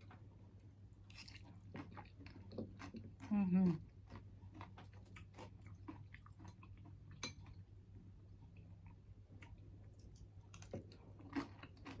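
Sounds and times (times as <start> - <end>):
chewing food: 0.9 - 7.7, 8.4 - 12.0.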